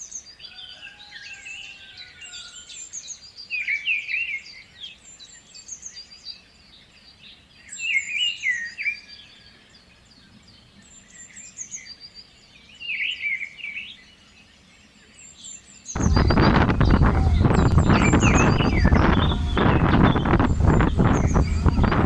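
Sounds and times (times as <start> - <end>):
songbirds singing and chirping: 16.0 - 22.0.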